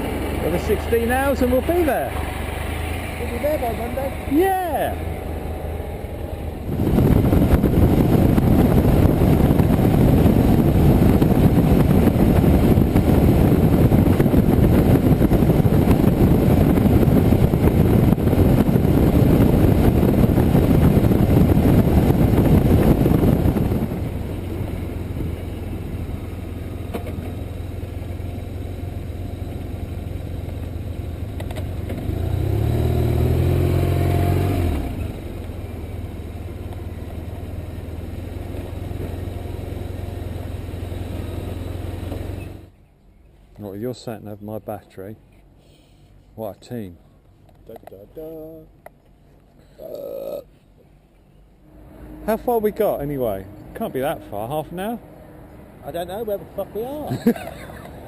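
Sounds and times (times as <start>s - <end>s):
passing engine: 0.0s - 42.8s, 51.6s - 58.0s
motorcycle engine and road noise: 0.0s - 58.0s.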